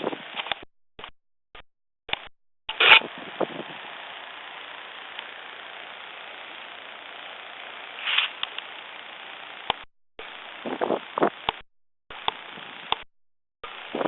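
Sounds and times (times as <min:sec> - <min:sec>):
wind on microphone: 0:00.0 - 0:00.5, 0:02.8 - 0:03.8, 0:10.6 - 0:11.5, 0:13.8 - 0:14.0
click: 0:08.4 - 0:08.7.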